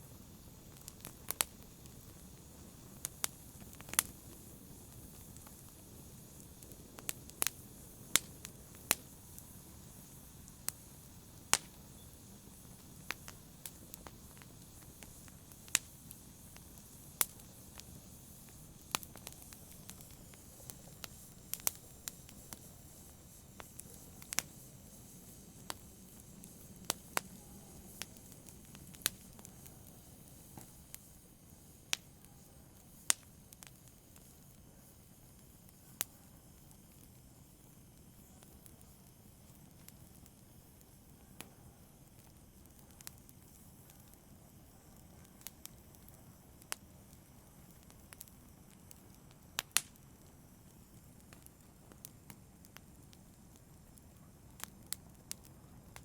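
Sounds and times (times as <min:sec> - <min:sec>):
low rush of fire: 0:00.0 - 0:56.0
burning wood popping and snapping: 0:00.6 - 0:31.1, 0:45.4 - 0:56.0.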